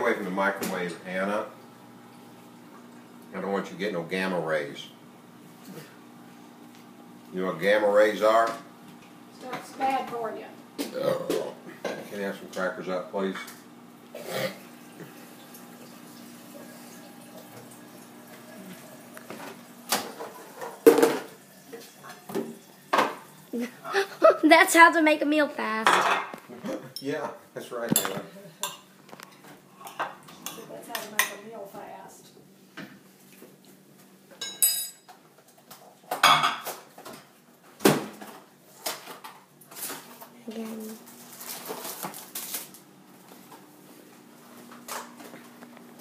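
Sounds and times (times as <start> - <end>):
microwave oven humming: 0.0 - 26.9, 36.2 - 46.0
dishes and cutlery clattering: 27.9 - 28.9, 34.4 - 35.2, 36.1 - 37.3.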